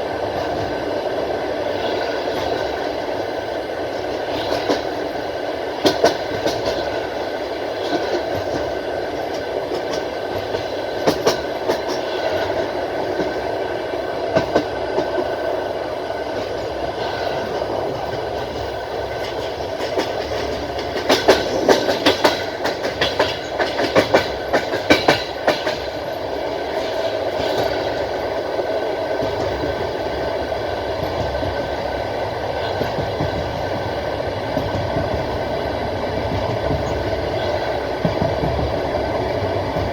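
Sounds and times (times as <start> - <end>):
train rumbling on track: 0.0 - 39.9
wheels clacking over rail joints: 3.9 - 13.6, 16.3 - 30.2, 30.9 - 39.9.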